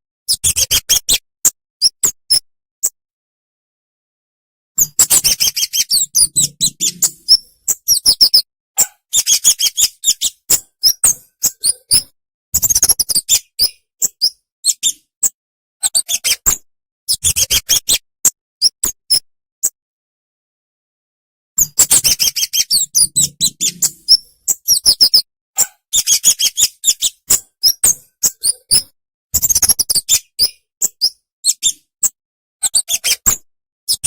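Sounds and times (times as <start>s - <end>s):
songbird chirping: 4.8s - 8.4s, 21.6s - 25.2s.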